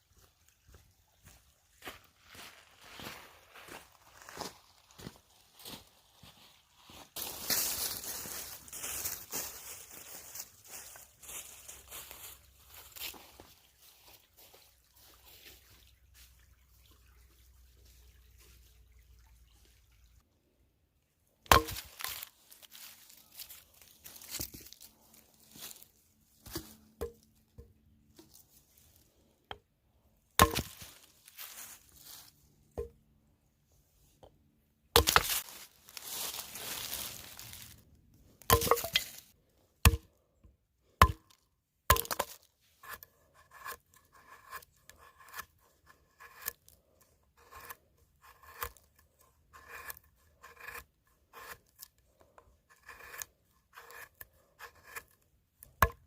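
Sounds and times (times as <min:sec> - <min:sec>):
knife cutting and scraping wood: 0:21.4 - 0:29.7, 0:30.3 - 0:33.0, 0:34.9 - 0:40.2, 0:41.0 - 0:56.0.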